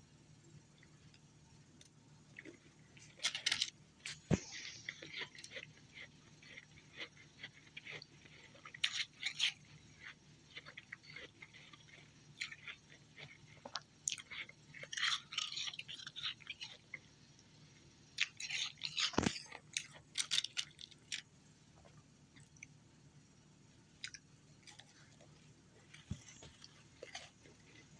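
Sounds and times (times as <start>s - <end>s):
chewing and crunching ice: 2.4s - 17.2s, 18.2s - 21.2s, 24.0s - 27.9s.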